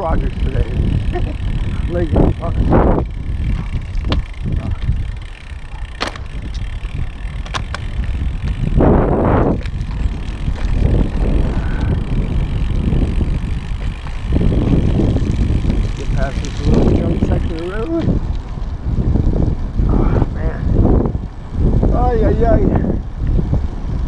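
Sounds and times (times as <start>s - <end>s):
bike road noise: 0.0s - 24.0s
wind rumbling over microphone: 0.0s - 24.0s
sharp clicks: 3.9s - 8.2s
rush of noise: 8.5s - 17.0s.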